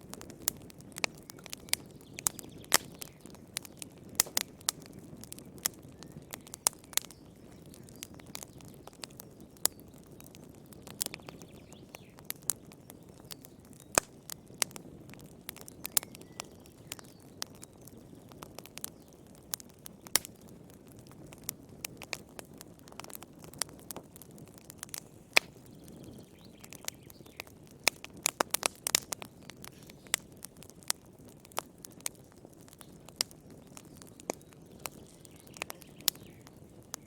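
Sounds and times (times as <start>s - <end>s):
low rumble of flames: 0.0s - 37.0s
wood fire crackling: 0.0s - 37.0s.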